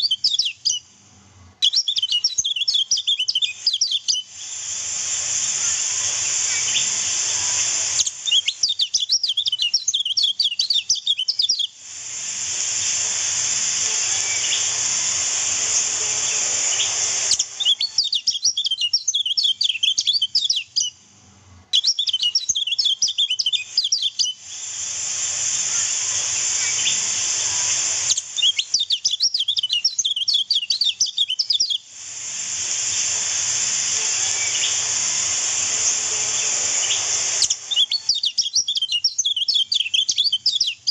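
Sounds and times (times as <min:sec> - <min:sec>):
bird twittering chirps: 0:00.0 - 0:00.8, 0:01.6 - 0:04.6, 0:05.6 - 0:11.7, 0:14.1 - 0:14.9, 0:15.7 - 0:21.0, 0:21.7 - 0:24.4, 0:26.1 - 0:31.8, 0:33.9 - 0:40.9
steady hiss: 0:00.0 - 0:40.9.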